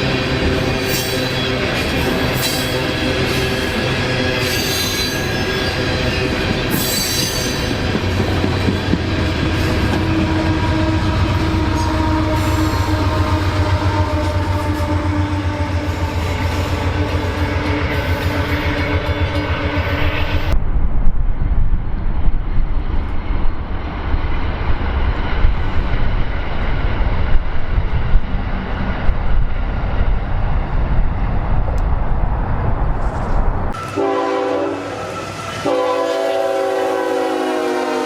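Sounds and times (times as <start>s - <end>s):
train wheels rumbling on rail: 0.0s - 38.0s
train air horn: 9.5s - 20.5s, 33.7s - 38.0s.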